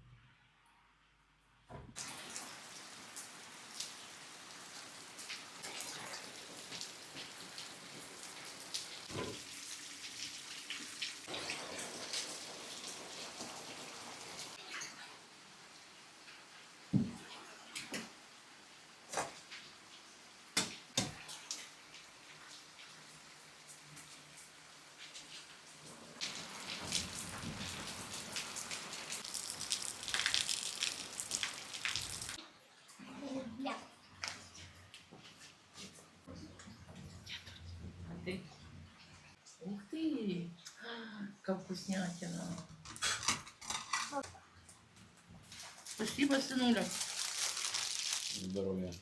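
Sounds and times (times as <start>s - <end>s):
heavy rain falling: 2.0s - 9.6s, 10.9s - 14.6s, 26.0s - 32.4s.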